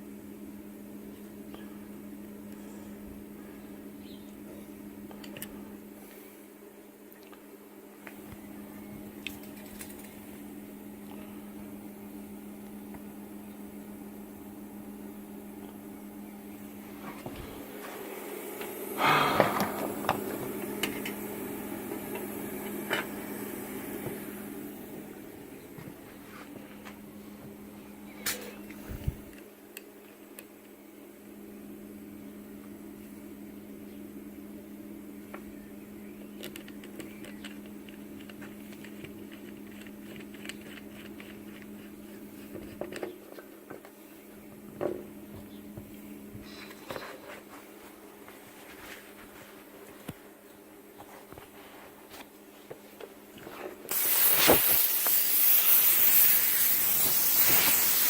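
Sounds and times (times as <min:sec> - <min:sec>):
electrical hum: 0:00.0 - 0:58.0
plasma cutter electrical hum: 0:08.5 - 0:26.2, 0:53.9 - 0:58.0
plasma arc hissing and crackling: 0:53.9 - 0:58.0
sharp pops: 0:53.9 - 0:58.0.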